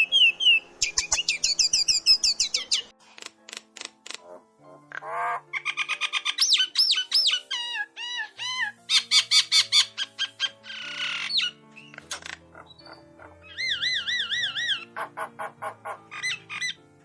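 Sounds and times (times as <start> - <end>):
bird chirping: 0.0 - 3.0, 4.7 - 16.8
soft background music: 0.0 - 17.0
harsh raspy bird call: 8.2 - 16.8.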